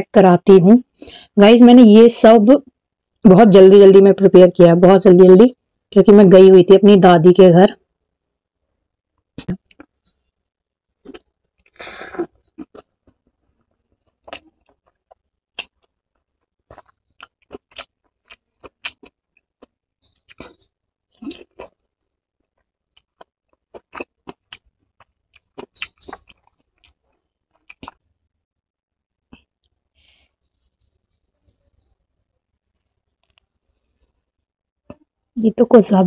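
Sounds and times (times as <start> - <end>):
chewing with wet clicks: 9.4 - 10.2, 11.0 - 11.8, 12.4 - 13.2, 14.0 - 28.0.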